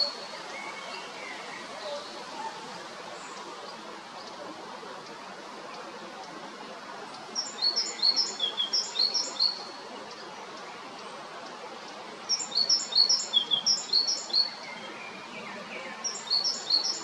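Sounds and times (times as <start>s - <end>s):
steady background hiss: 0.0s - 17.0s
great tit singing: 7.1s - 10.6s, 12.2s - 17.0s.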